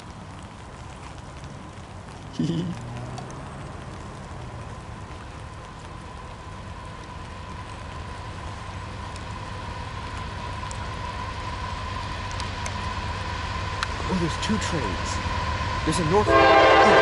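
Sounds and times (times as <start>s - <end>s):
distant train rumble: 0.0s - 17.0s
rushing outdoor noise: 0.0s - 17.0s.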